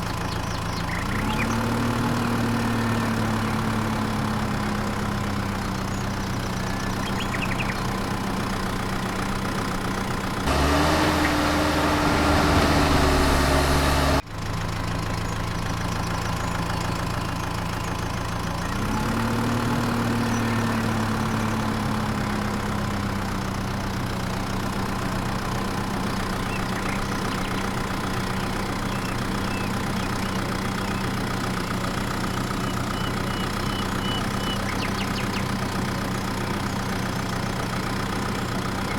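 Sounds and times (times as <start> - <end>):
small motor humming: 10.4 - 14.2.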